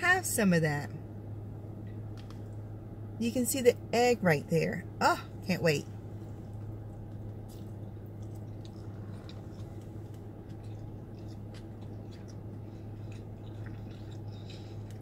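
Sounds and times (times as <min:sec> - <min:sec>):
steady low hum: 0:00.0 - 0:15.0
faint mouth clicks chewing: 0:06.6 - 0:15.0.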